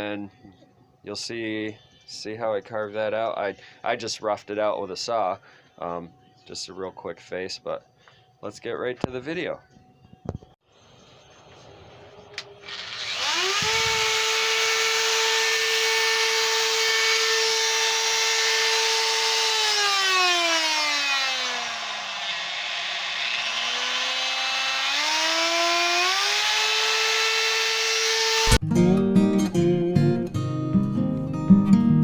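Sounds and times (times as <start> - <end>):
die grinder motor whine: 11.5 - 28.6.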